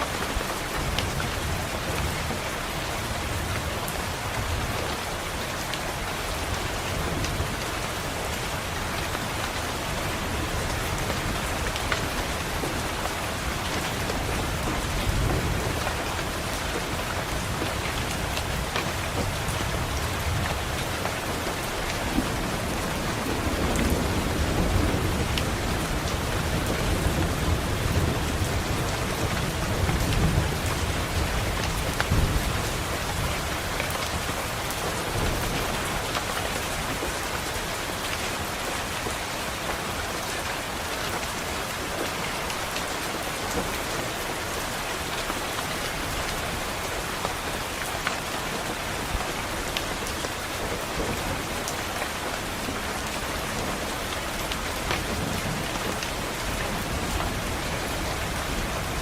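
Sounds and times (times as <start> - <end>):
rain falling: 0.0 - 59.0
thunder rumbling: 10.1 - 37.5.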